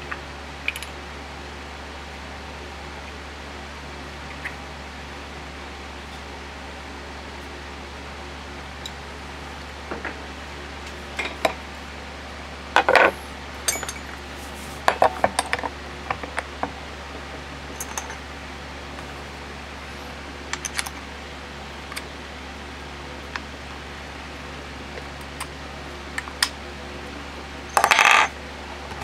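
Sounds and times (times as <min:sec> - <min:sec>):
steady low hum: 0:00.0 - 0:29.0
small metal parts clinking: 0:12.8 - 0:14.2, 0:17.8 - 0:18.2, 0:27.7 - 0:28.3.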